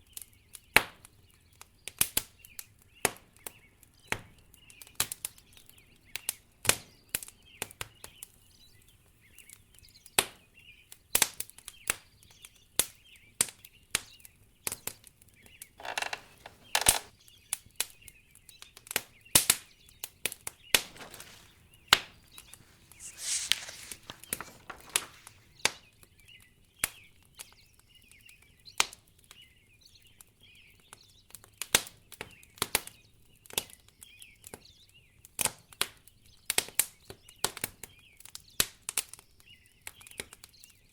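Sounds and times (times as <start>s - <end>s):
wood fire crackling: 20.7s - 25.7s.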